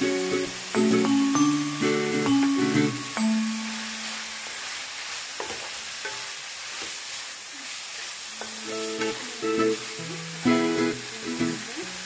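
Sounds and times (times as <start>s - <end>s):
chicken sizzling in oil: 0.0s - 12.0s
spatula tapping and scraping pan: 5.4s - 7.0s.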